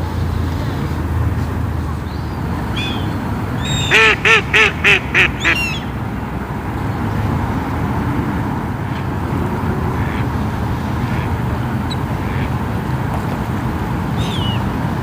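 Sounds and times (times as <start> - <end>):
duck quacking: 3.8 - 5.9, 10.0 - 10.3, 11.9 - 12.5.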